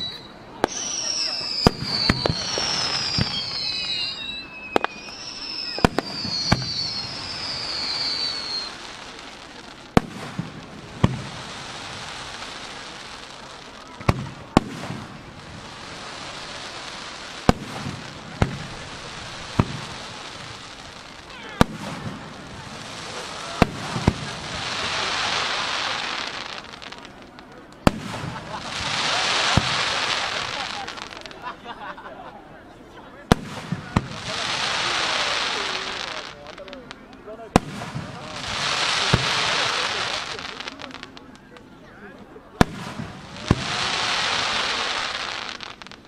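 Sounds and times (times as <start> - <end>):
firework falling whistles: 0.0 - 13.2, 27.8 - 31.4, 33.3 - 41.5, 42.6 - 46.0
firework crackling hiss: 0.0 - 31.5, 33.3 - 41.7, 42.6 - 46.0
firework shells bursting: 0.6 - 11.4.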